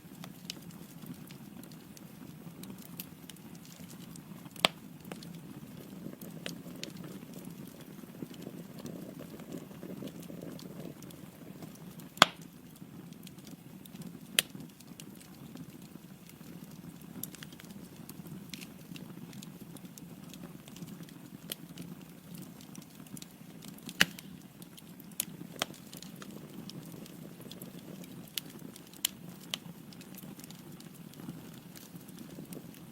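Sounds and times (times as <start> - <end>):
logs popping and crackling: 0.0 - 32.9
fire flame rushing: 2.8 - 20.4.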